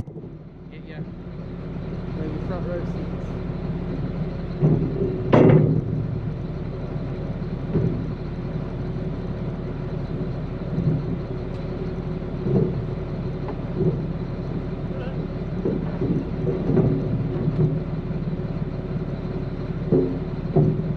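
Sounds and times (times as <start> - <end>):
vehicle engine idling: 0.0 - 20.9
loud clatter: 4.5 - 6.4, 15.4 - 18.2
faint bumps: 15.3 - 18.2.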